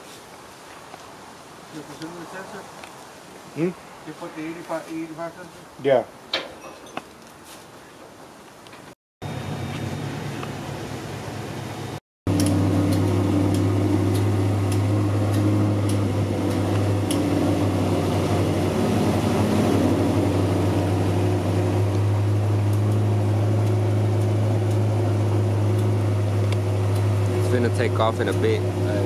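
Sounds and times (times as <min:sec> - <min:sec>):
car engine idling: 0:09.3 - 0:29.0.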